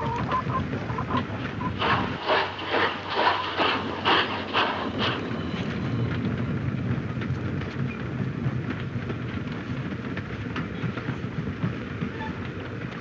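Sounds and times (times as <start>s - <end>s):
railway carriage rumble: 0.0s - 13.0s.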